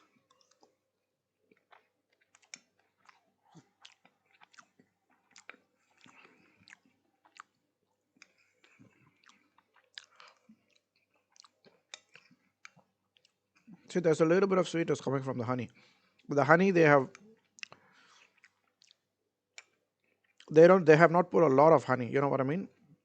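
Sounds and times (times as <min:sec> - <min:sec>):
faint mouth clicks and smacks: 0:00.0 - 0:00.8, 0:01.5 - 0:13.9, 0:17.1 - 0:20.5
person chewing cheese: 0:00.0 - 0:13.9, 0:15.8 - 0:16.3, 0:17.1 - 0:20.5.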